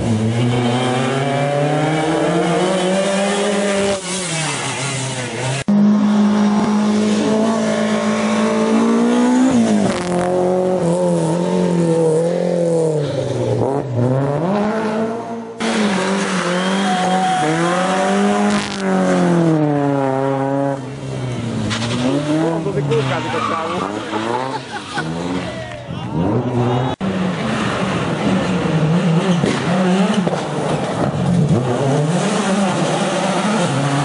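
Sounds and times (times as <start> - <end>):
rally car engines at full throttle: 0.0 - 34.0.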